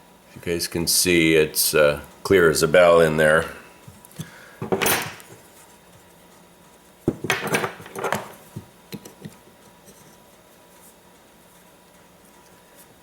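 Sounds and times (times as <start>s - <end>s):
parts clattering: 4.2s - 5.5s, 7.1s - 10.2s.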